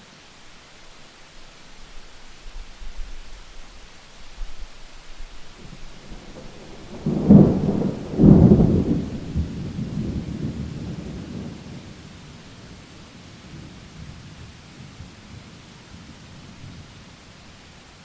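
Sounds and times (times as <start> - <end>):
steady rain: 0.0 - 18.0
thunderclap crashes and rumble: 5.7 - 11.8.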